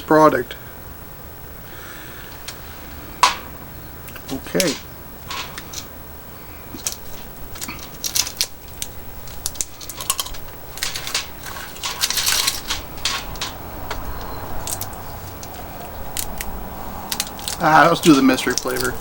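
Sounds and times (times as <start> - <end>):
plastic crinkling: 6.6 - 19.0.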